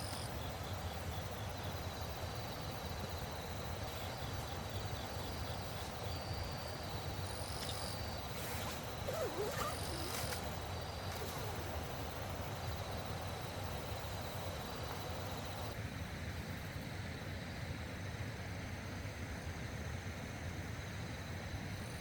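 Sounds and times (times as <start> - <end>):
insects trilling: 0.0 - 15.8
fast stream rushing: 8.0 - 15.7.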